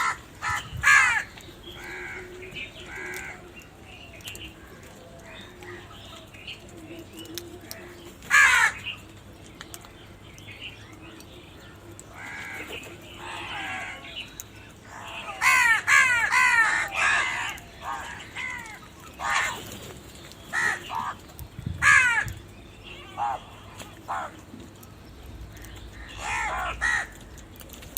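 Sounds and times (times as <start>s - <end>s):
crows cawing: 0.0s - 3.6s, 7.7s - 8.9s, 12.1s - 19.7s, 20.5s - 22.4s, 23.0s - 24.4s, 25.5s - 27.4s.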